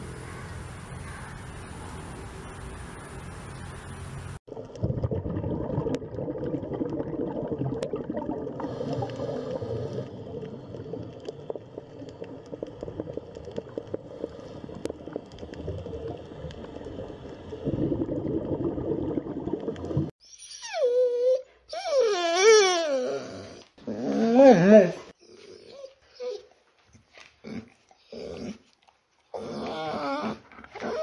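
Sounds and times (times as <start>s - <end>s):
underwater bubbling and gurgling: 4.5s - 20.1s.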